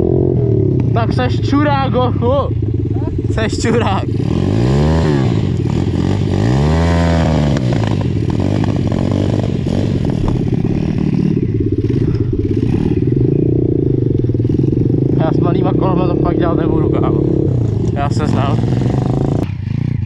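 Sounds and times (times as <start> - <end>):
pit bike engine throttle blips: 0.0 - 20.0.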